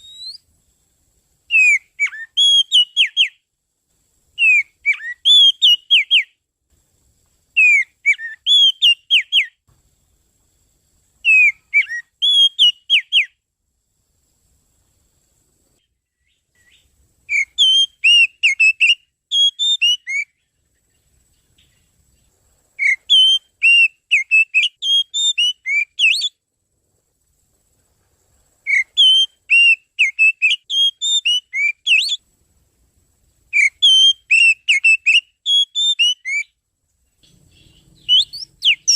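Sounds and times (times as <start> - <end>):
magpie-robin whistled song: 0.0 - 0.5, 1.5 - 3.4, 4.4 - 6.4, 7.6 - 9.6, 11.2 - 13.4, 16.2 - 20.6, 22.8 - 26.4, 28.6 - 32.2, 33.5 - 36.6, 37.2 - 38.9.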